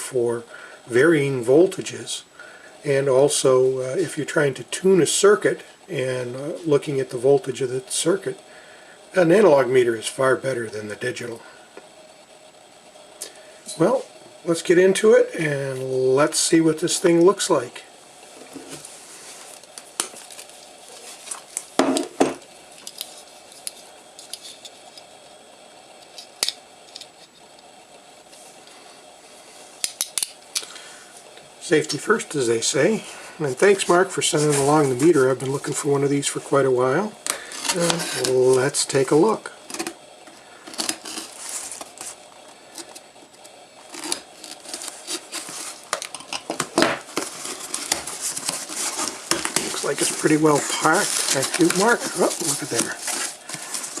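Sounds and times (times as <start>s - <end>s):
cardboard package being opened: 18.4s - 22.1s, 40.6s - 43.1s, 43.8s - 54.0s
cardboard box rustling and tearing: 46.7s - 54.0s.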